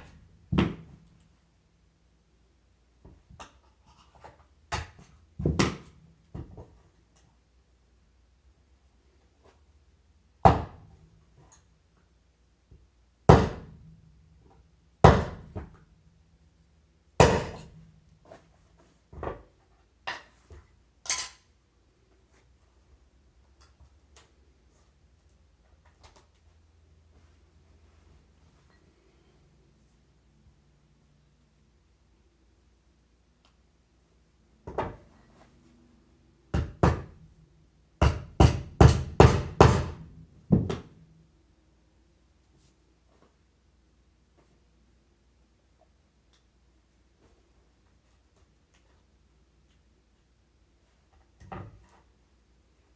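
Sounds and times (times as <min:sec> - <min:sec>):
hammer knocking on wheel bearings: 0:10.5 - 0:10.9, 0:13.3 - 0:13.9, 0:15.0 - 0:15.8, 0:17.2 - 0:17.8, 0:36.6 - 0:37.2, 0:38.0 - 0:41.0
hammer striking metal caster: 0:17.2 - 0:17.8.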